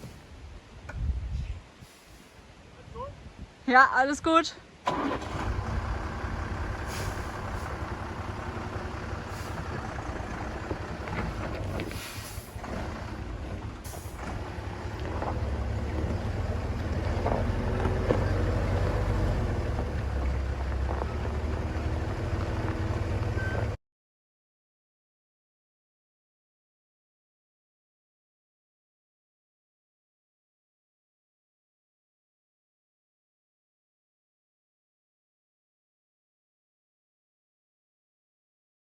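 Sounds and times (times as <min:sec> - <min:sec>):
short air hisses: 0:01.8 - 0:02.4, 0:06.8 - 0:07.7, 0:09.2 - 0:09.7, 0:11.8 - 0:12.6
truck engine running: 0:04.9 - 0:23.8.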